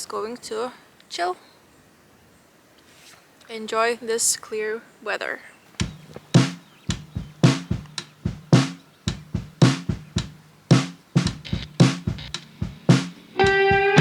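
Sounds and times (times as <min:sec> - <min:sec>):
sparse drum beat: 0:05.8 - 0:14.0.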